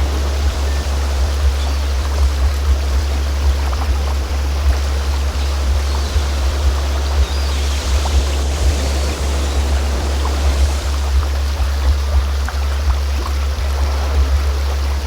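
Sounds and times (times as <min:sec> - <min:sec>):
deep low synthesised tone: 0:00.0 - 0:15.0
flowing stream water: 0:00.0 - 0:15.0.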